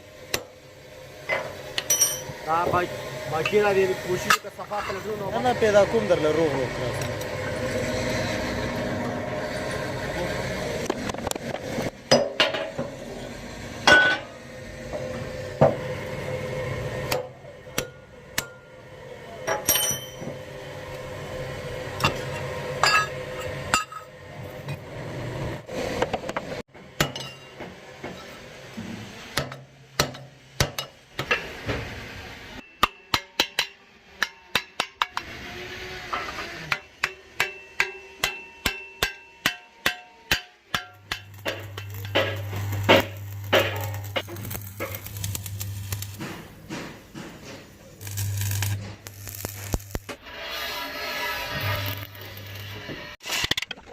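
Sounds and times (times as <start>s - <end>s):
hammer blows on metal: 36.1s - 43.9s.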